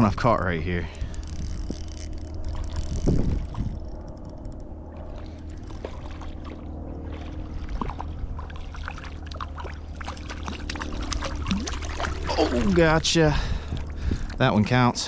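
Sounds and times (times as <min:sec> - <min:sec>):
low water rumble: 0:00.0 - 0:15.0
river water running and trickling: 0:05.0 - 0:15.0
small water splashes: 0:05.0 - 0:15.0.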